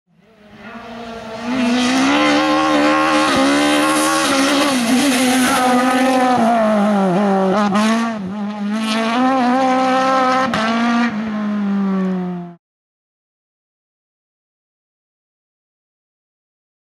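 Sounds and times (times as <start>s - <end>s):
race car engine revving: 0.2s - 12.6s.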